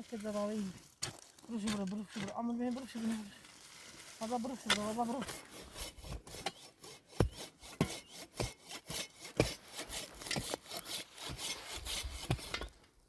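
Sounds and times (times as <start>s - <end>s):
hand saw cutting wood: 4.6s - 12.8s.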